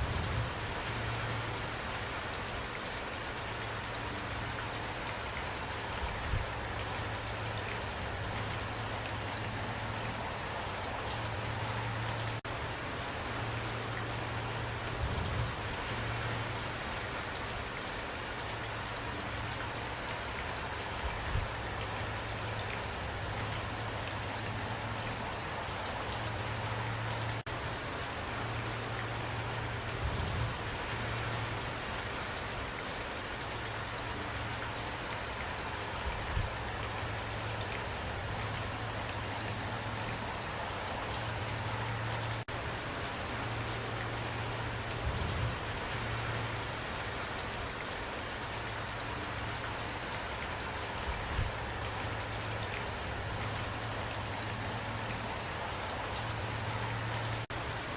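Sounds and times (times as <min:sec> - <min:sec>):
rain pattering: 0:00.0 - 0:57.9.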